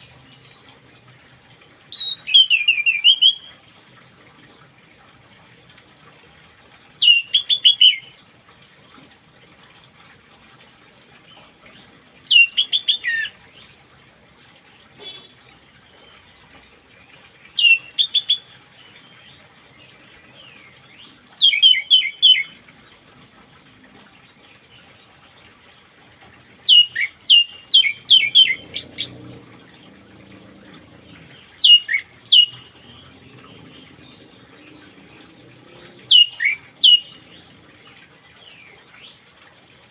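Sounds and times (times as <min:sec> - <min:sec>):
thrush singing whistled notes: 0:26.6 - 0:29.3, 0:30.8 - 0:33.1, 0:36.0 - 0:37.3.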